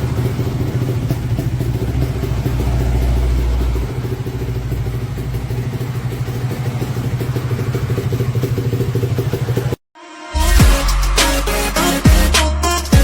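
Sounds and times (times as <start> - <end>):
two-stroke motorcycle engine idling: 0.0 - 9.8
music: 10.0 - 13.0.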